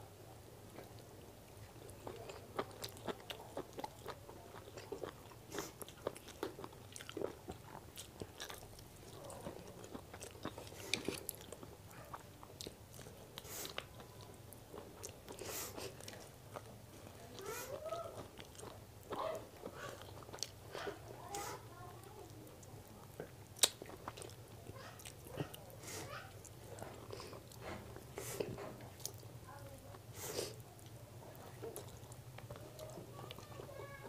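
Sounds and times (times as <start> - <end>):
person chewing with wet mouth clicks: 0.7 - 15.4, 18.2 - 20.9, 23.2 - 25.7.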